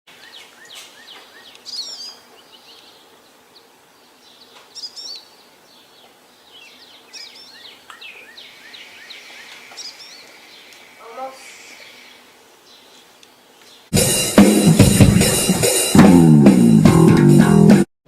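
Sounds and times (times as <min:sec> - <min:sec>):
birds warbling: 0:00.1 - 0:13.9
birds chirping: 0:00.1 - 0:16.0.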